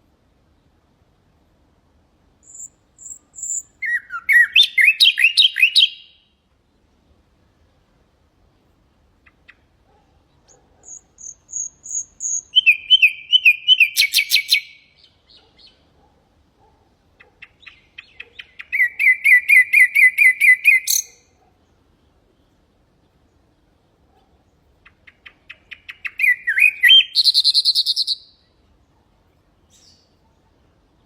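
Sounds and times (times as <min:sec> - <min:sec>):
nightingale singing: 0:02.4 - 0:06.4, 0:09.2 - 0:16.0, 0:17.2 - 0:21.5, 0:24.5 - 0:28.7, 0:29.6 - 0:30.4.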